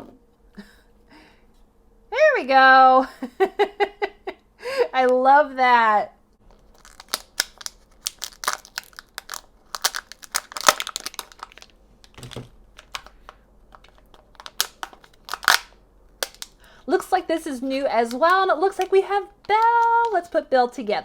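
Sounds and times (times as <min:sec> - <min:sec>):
plastic wrapper crinkling and tearing: 0:06.4 - 0:17.2, 0:17.8 - 0:20.4
small plastic parts clicking: 0:06.5 - 0:16.6.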